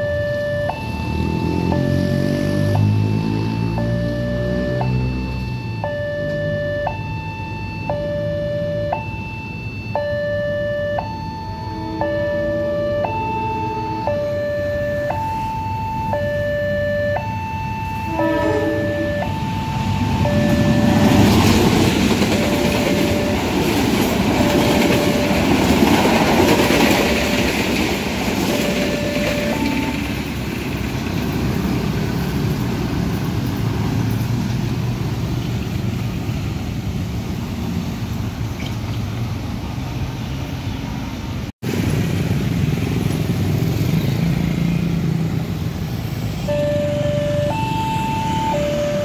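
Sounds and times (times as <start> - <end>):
two-tone crossing alarm: 0.0 - 31.0, 46.4 - 49.0
motorcycle engines: 0.0 - 49.0
road traffic: 0.0 - 49.0.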